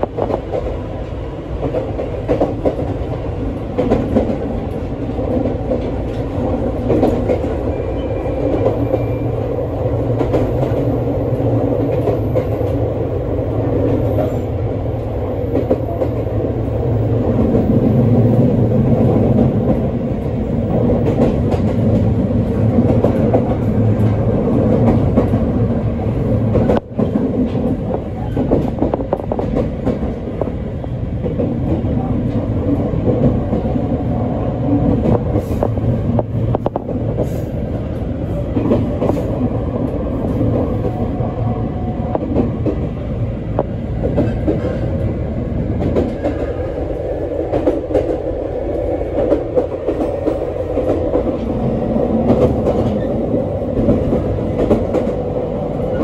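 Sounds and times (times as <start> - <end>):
clicks of train wheels: 0.0 - 9.4, 19.3 - 25.5, 26.4 - 30.6, 34.7 - 41.1, 43.6 - 45.1, 45.7 - 56.0
wheels rumbling on rail: 0.0 - 56.0.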